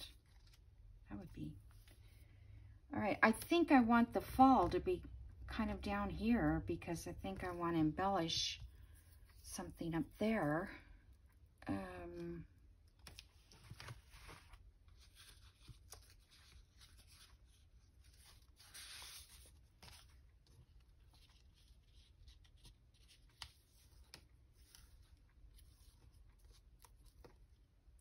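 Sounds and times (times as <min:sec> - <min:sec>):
paper rustling and sliding: 0:13.0 - 0:27.2.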